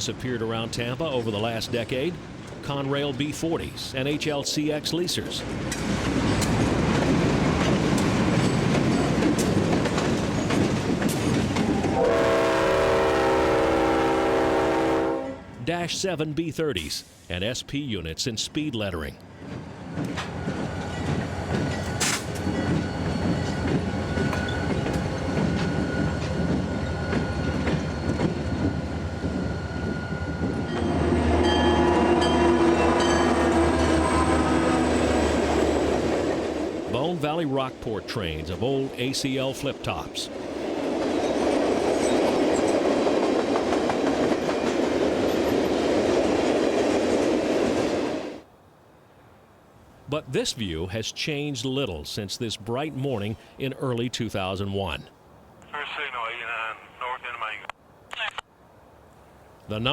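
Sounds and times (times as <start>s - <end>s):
train wheels rumbling: 0.0s - 15.8s, 18.6s - 48.5s
wheels clicking over rail joints: 5.4s - 12.0s, 19.5s - 28.5s.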